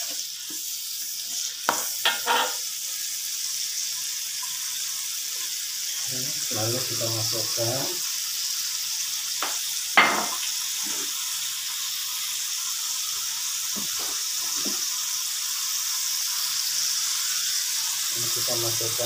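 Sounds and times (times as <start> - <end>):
spice paste sizzling in oil: 0.0 - 19.0.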